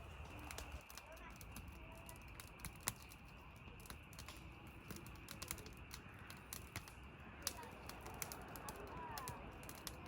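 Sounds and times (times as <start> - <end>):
sharp clicks and snaps: 0.2 - 10.0.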